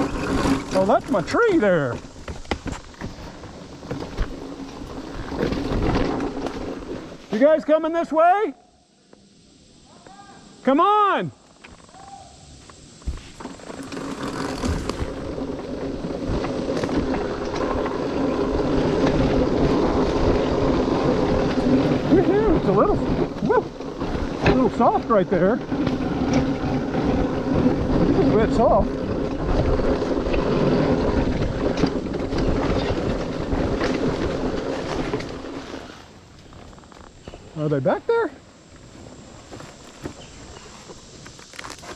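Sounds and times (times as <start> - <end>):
dirt bike engine under throttle: 0.0 - 7.2, 13.1 - 37.4
knocks and clatter over rough ground: 0.0 - 7.6, 12.6 - 41.9.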